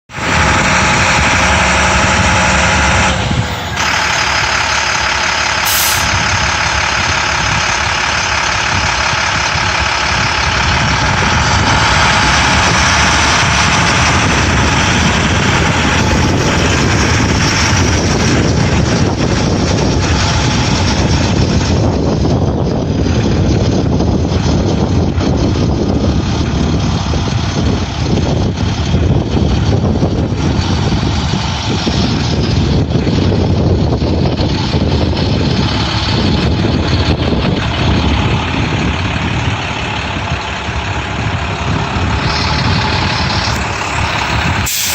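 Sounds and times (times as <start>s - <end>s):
diesel truck engine running: 0.1s - 44.9s.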